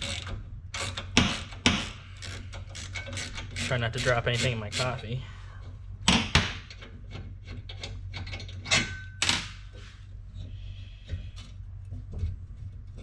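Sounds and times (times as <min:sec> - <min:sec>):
metal parts scraping: 0:00.0 - 0:04.5.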